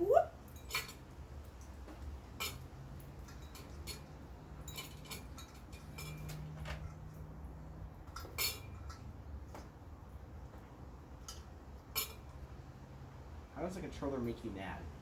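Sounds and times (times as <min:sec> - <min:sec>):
small hardware clicking and clinking: 0:01.6 - 0:07.1.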